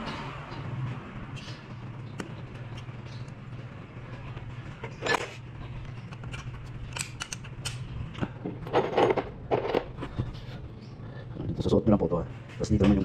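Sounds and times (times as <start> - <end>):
steady low hum: 0.0 - 13.0
small metal parts clicking: 6.1 - 9.9.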